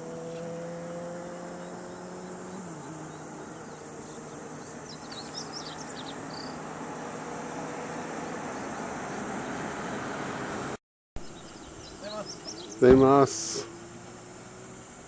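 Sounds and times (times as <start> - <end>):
engine hum: 0.0 - 15.0
insects droning: 0.0 - 15.0.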